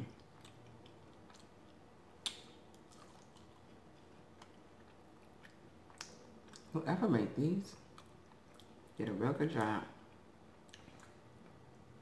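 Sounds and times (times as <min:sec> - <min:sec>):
faint chewing mouth clicks: 0:00.2 - 0:06.7, 0:07.9 - 0:08.9, 0:10.6 - 0:11.6.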